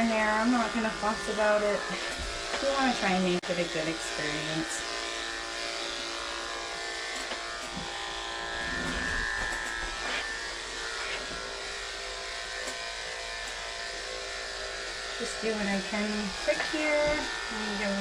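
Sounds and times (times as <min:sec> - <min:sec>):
electric clippers humming: 0:00.0 - 0:18.0.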